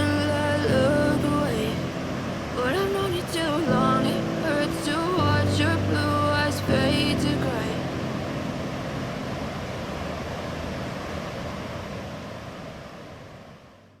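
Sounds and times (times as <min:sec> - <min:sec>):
song: 0:00.0 - 0:08.9
steady rushing noise: 0:00.0 - 0:13.6.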